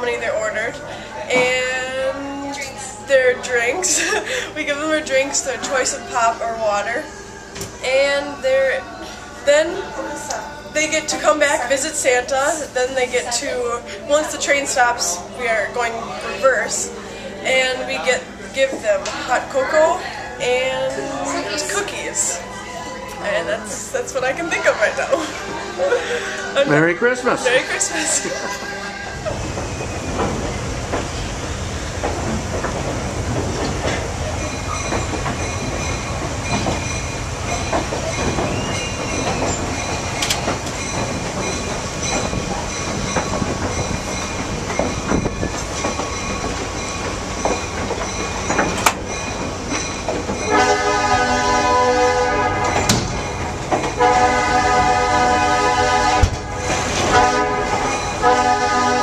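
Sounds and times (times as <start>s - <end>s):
train rumbling on rails: 0.0s - 59.0s
train horn blasts: 50.5s - 53.0s, 53.9s - 59.0s.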